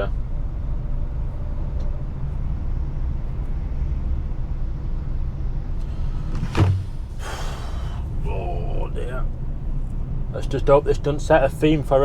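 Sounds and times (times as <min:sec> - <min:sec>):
diesel truck engine running: 0:04.6 - 0:12.0
short hiss: 0:05.8 - 0:08.1
sudden knock with low hum: 0:05.9 - 0:07.6.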